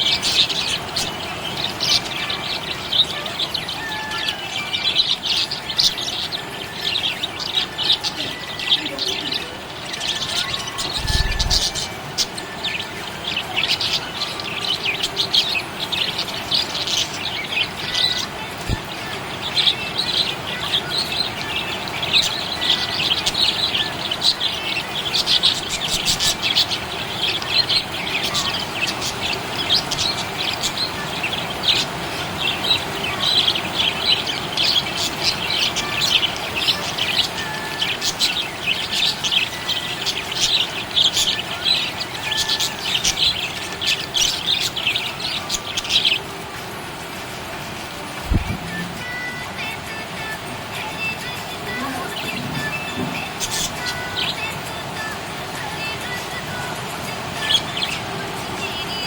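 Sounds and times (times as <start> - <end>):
budgerigars chirping: 0.0 - 46.5, 50.2 - 55.4.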